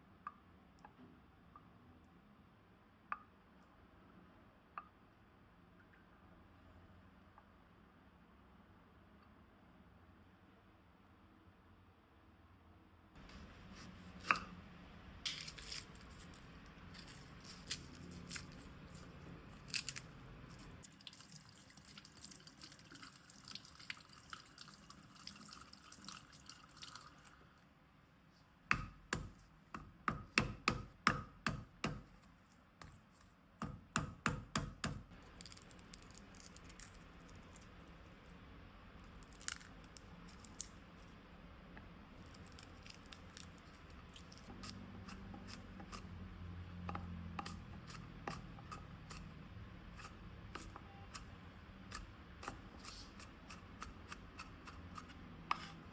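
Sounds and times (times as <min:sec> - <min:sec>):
knife chopping on a cutting board: 0:13.2 - 0:14.5, 0:28.7 - 0:32.2, 0:33.6 - 0:35.1, 0:51.9 - 0:55.8.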